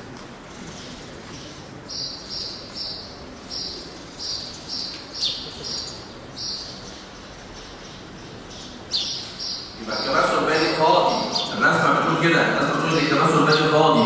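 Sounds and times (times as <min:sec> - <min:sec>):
small bird chirping: 0:01.9 - 0:09.8.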